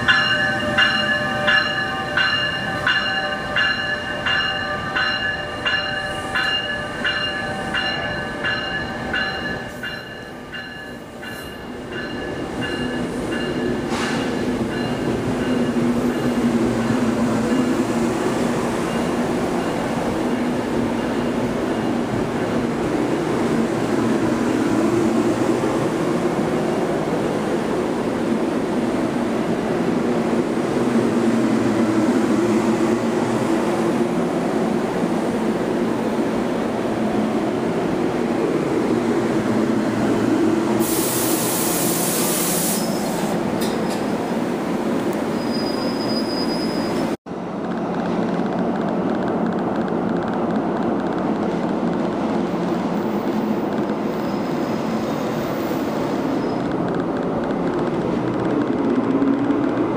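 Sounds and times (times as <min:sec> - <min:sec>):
train wheels rumbling on rails: 0:00.0 - 0:59.9
loud high hiss: 0:40.8 - 0:43.2
short high squeal: 0:45.3 - 0:47.2.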